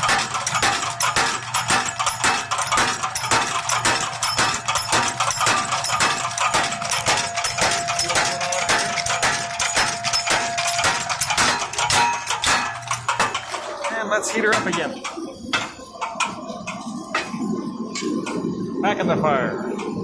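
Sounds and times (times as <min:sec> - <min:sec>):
power hammer striking steel: 0:00.0 - 0:15.8.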